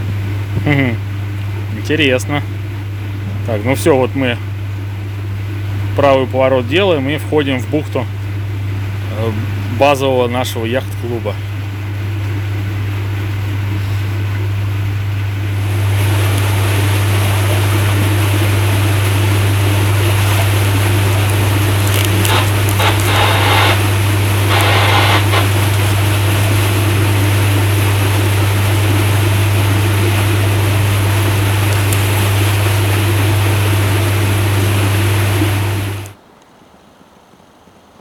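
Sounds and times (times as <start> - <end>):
boat motor droning: 0.0 - 36.2
water noise: 0.0 - 36.2.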